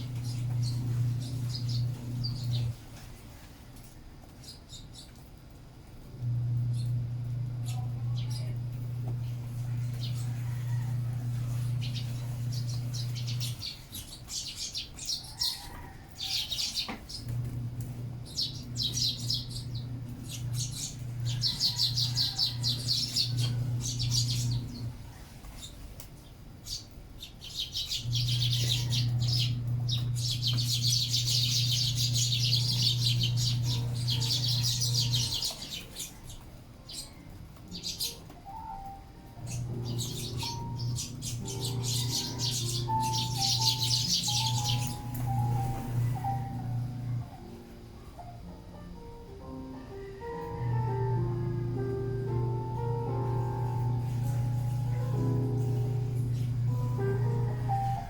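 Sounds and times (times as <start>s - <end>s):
sparrows chirping: 0.0s - 3.0s, 4.3s - 5.3s, 6.2s - 47.2s, 50.5s - 58.0s
low steady hum: 0.0s - 14.8s, 17.1s - 25.6s, 27.7s - 58.0s.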